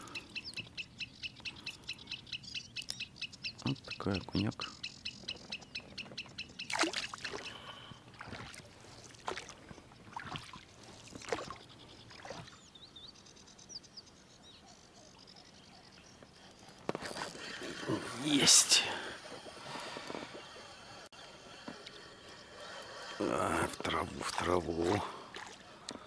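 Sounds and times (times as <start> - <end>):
small bird chirping: 0.0 - 7.8
water splashes: 6.7 - 12.6, 23.1 - 26.0.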